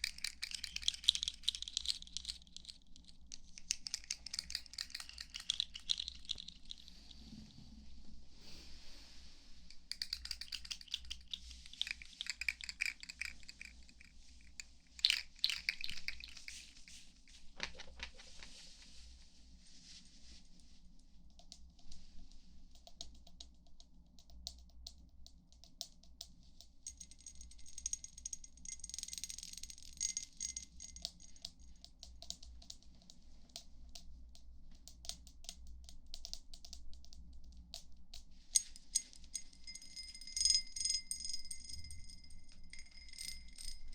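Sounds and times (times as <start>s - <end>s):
crinkling scratchy handling noise: 15.3s - 19.3s.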